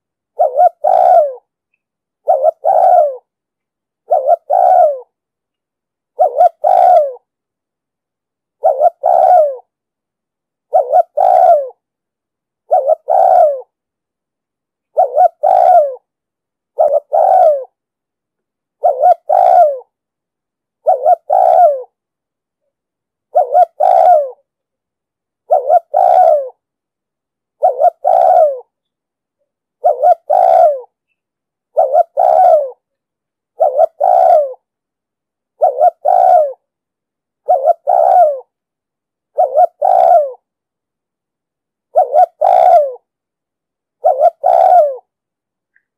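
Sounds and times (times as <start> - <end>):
dove cooing: 0.3 - 1.5, 2.2 - 3.3, 4.0 - 5.2, 6.1 - 7.3, 8.6 - 9.7, 10.7 - 11.8, 12.7 - 13.8, 14.9 - 16.1, 16.7 - 17.8, 18.8 - 20.0, 20.8 - 22.0, 23.3 - 24.5, 25.5 - 26.6, 27.6 - 28.8, 29.8 - 31.0, 31.7 - 32.9, 33.5 - 34.7, 35.6 - 36.7, 37.4 - 38.6, 39.3 - 40.5, 41.9 - 43.1, 44.0 - 45.1.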